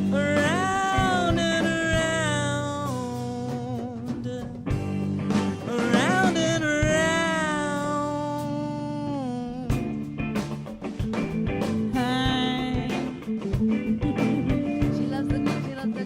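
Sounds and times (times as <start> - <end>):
bending lead melody: 0.0 - 16.0
funk band guitar and bass: 0.0 - 16.0.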